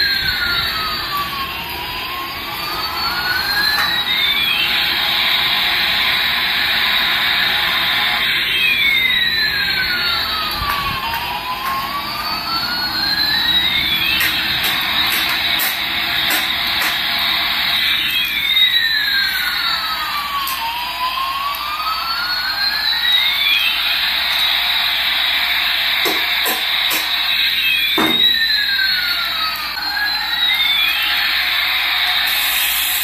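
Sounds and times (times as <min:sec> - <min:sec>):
toy jet engine hiss with sweeping tones: 0:22.4 - 0:33.0.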